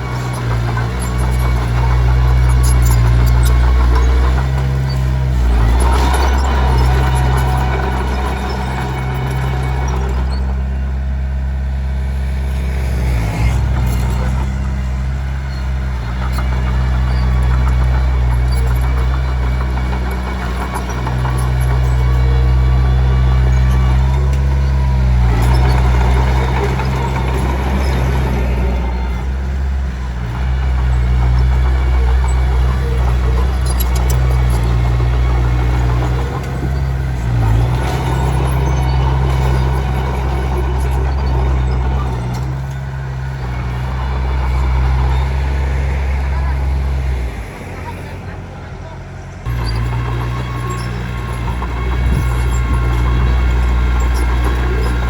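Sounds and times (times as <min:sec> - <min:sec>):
clatter: 0:00.0 - 0:47.2, 0:49.4 - 0:55.0
bulldozer diesel engine running: 0:00.0 - 0:55.0
rough grinding noise: 0:00.0 - 0:55.0.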